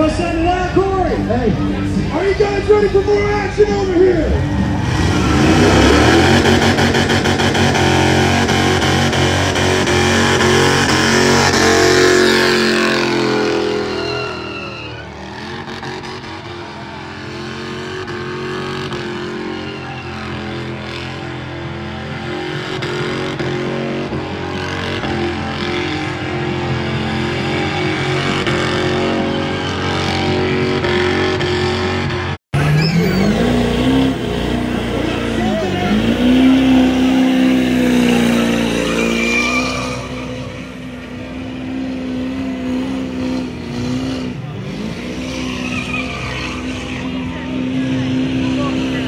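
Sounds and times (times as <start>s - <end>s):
pickup truck engine revving: 0.0s - 49.0s
hot-rod engine revving: 3.7s - 14.3s, 15.0s - 49.0s.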